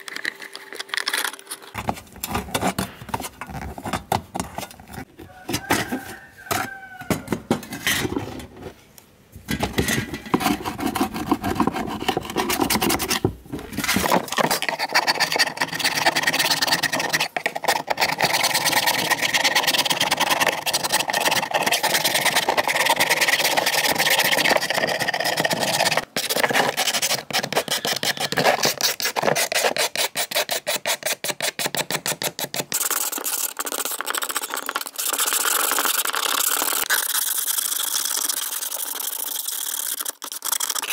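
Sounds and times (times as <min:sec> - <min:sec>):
rust scraping off metal: 0:01.6 - 0:08.8, 0:09.5 - 0:16.0.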